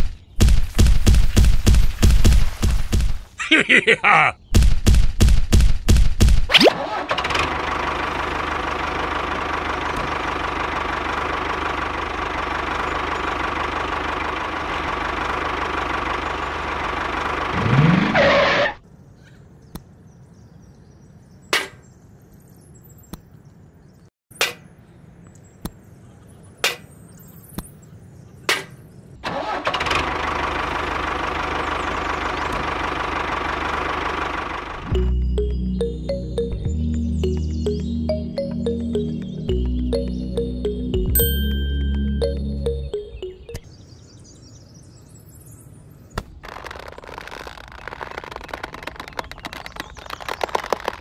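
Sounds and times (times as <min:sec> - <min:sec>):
small tractor engine running: 0:06.8 - 0:18.7, 0:29.2 - 0:36.1.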